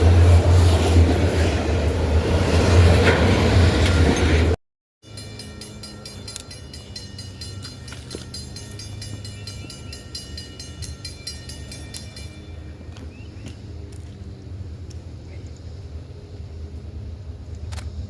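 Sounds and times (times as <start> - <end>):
train diesel drone: 0.0 - 18.0
steady high tones: 5.0 - 13.1.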